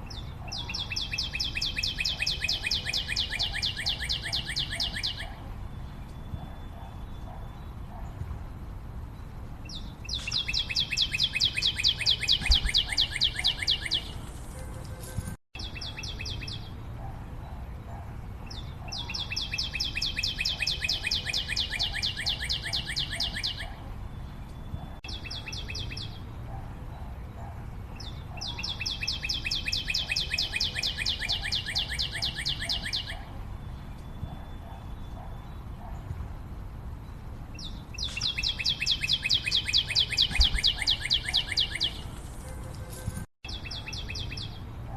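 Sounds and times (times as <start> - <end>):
bird trilling: 0.1 - 5.4, 9.7 - 14.7, 18.6 - 23.8, 28.1 - 33.3, 37.6 - 42.2.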